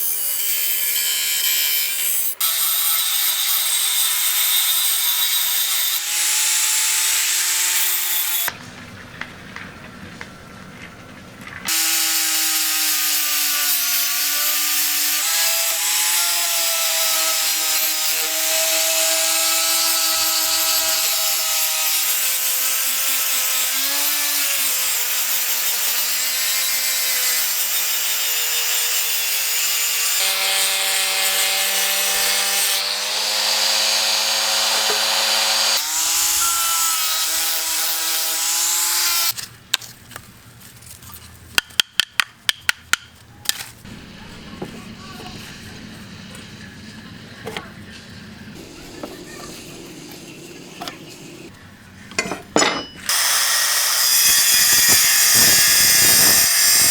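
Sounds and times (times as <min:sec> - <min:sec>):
power tool grinding metal: 0:00.0 - 0:08.6, 0:11.7 - 0:39.4, 0:53.0 - 0:56.9.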